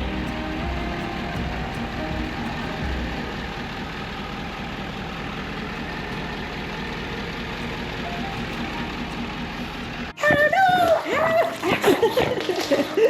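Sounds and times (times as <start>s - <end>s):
pickup truck engine running: 0.0s - 10.2s.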